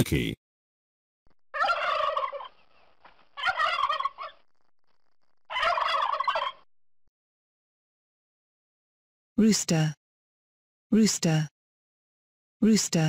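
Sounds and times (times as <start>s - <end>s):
turkey gobbling: 1.5s - 4.5s, 5.5s - 6.7s.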